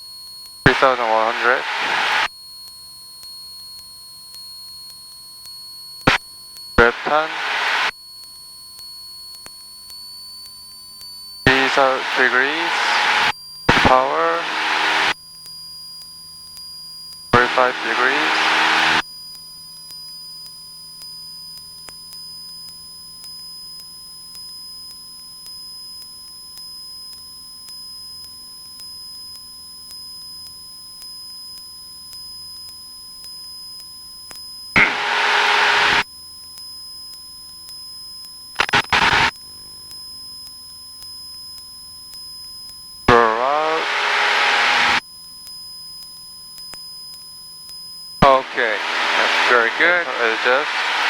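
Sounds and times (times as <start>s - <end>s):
garbled radio voice: 0.7s - 2.3s, 6.8s - 7.9s, 11.5s - 15.2s, 17.4s - 19.0s, 34.8s - 36.0s, 38.6s - 39.3s, 43.1s - 45.0s, 48.2s - 51.0s
headset hiss: 0.7s - 2.3s, 6.8s - 7.9s, 11.5s - 15.2s, 17.4s - 19.0s, 34.8s - 36.0s, 38.6s - 39.3s, 43.2s - 45.0s, 48.2s - 51.0s
thin electronic whining tones: 0.7s - 2.3s, 6.8s - 7.9s, 11.5s - 15.2s, 17.4s - 19.0s, 34.8s - 36.0s, 38.6s - 39.3s, 43.1s - 45.0s, 48.2s - 51.0s
sharp clicks: 34.8s - 36.0s, 38.6s - 39.3s.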